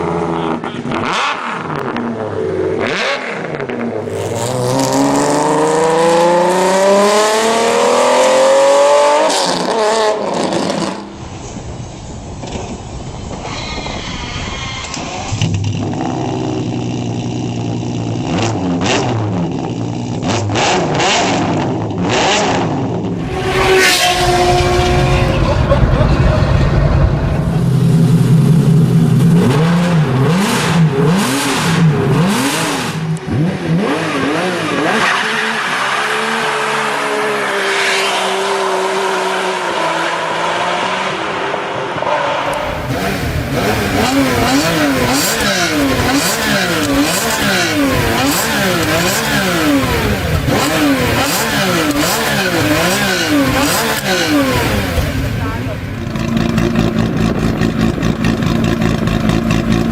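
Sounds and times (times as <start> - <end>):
car engine revving: 0.0 - 11.2, 14.9 - 59.9.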